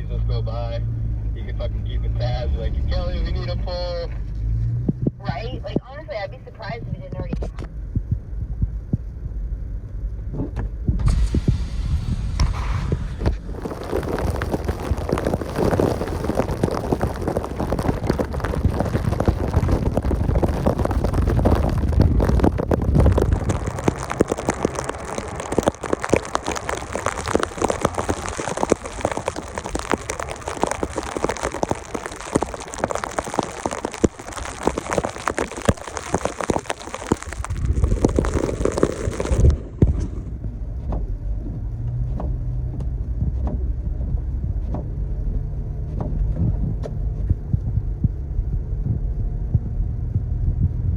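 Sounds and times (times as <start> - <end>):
engine rumble: 0.0 - 50.9
snow and ice hitting a truck: 11.0 - 40.3.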